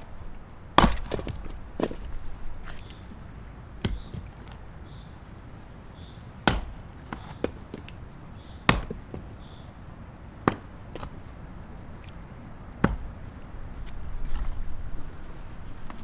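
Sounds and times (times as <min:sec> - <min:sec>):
axe chopping wood: 0:00.0 - 0:04.7, 0:06.0 - 0:09.6, 0:10.3 - 0:11.4, 0:12.7 - 0:14.7.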